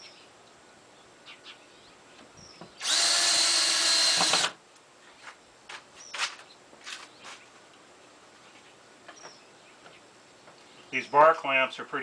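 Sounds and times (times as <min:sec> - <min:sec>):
drill driving screw into wood: 0:02.8 - 0:04.6.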